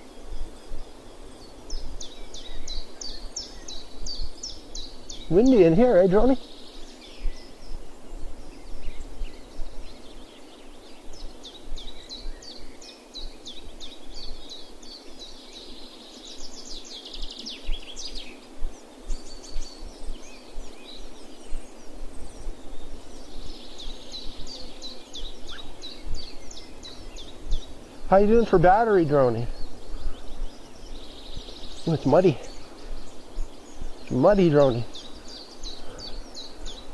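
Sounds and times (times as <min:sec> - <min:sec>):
small birds chirping: 0:00.0 - 0:36.9
wind hiss: 0:00.0 - 0:36.9.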